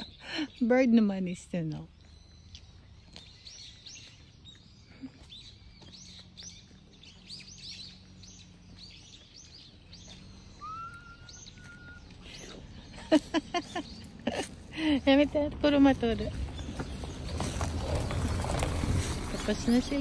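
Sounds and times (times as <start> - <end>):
small birds chirping: 0.0 - 20.0
rising whistled bird note: 10.5 - 12.6.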